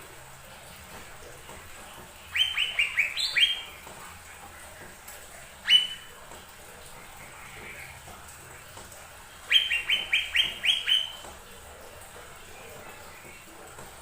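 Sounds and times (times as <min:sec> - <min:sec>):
leafbird chirping: 0:02.2 - 0:03.8, 0:05.6 - 0:06.1, 0:09.5 - 0:11.3.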